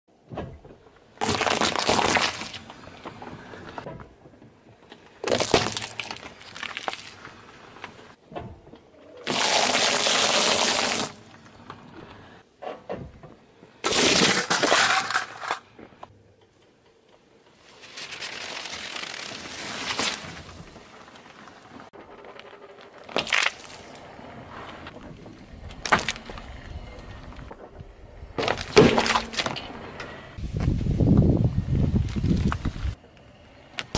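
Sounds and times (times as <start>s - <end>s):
objects crushed under tyre: 1.2s - 4.2s, 5.2s - 7.4s, 13.8s - 15.8s, 18.0s - 24.0s, 28.4s - 29.7s.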